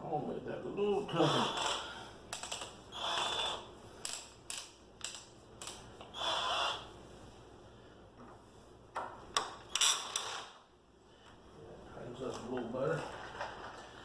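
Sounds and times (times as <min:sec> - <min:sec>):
cordless drill whining: 0:02.9 - 0:03.7, 0:06.1 - 0:06.9.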